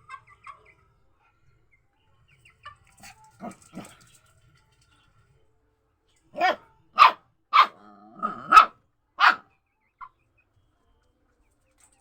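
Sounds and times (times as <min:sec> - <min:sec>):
dog barking: 0:06.4 - 0:09.5.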